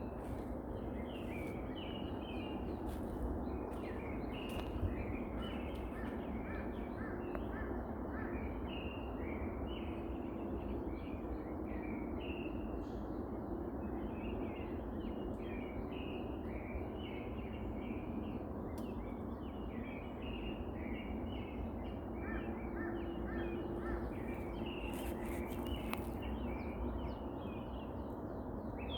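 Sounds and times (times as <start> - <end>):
songbirds chirping and whistling: 0.0 - 7.5, 13.9 - 28.9.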